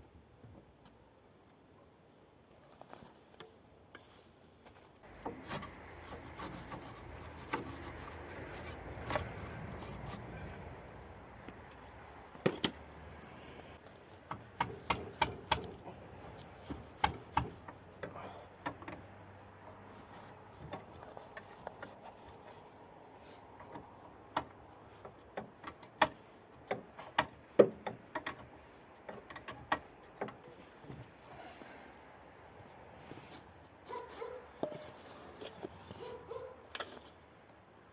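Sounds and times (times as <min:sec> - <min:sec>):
rubbing and scraping: 0:05.0 - 0:11.3, 0:33.0 - 0:37.2
sharp clicks and knocks: 0:14.3 - 0:15.8, 0:16.6 - 0:17.8, 0:23.6 - 0:31.1.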